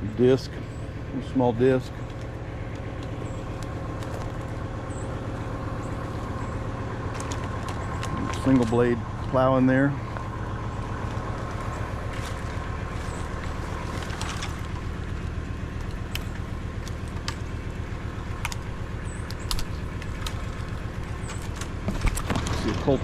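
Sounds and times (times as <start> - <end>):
tractor diesel engine running: 0.0 - 23.0
sharp clicks and snaps: 2.0 - 4.6, 7.1 - 8.8, 15.8 - 17.5, 18.3 - 22.5.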